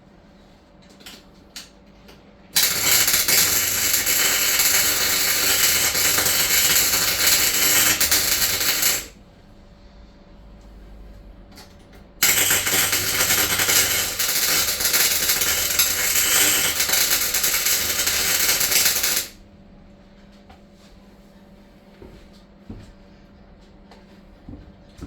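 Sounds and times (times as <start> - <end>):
welding arc crackling: 2.6 - 9.2, 12.2 - 19.4.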